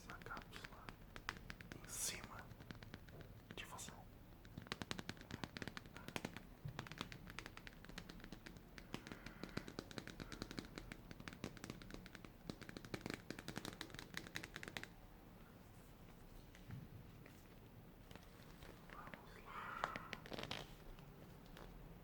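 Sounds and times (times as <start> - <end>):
rapid sharp clicks: 0.0 - 15.0.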